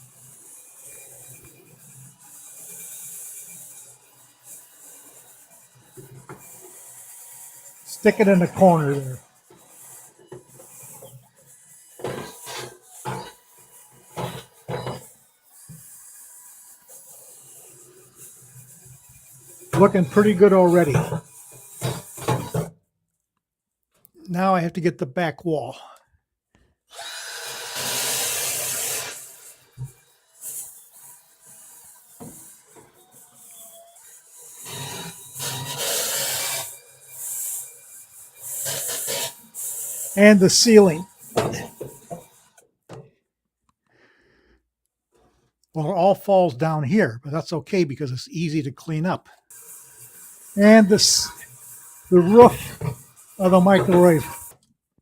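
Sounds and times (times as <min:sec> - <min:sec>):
drill-spun brush scrubbing: 0:06.5 - 0:22.6, 0:48.9 - 0:54.6.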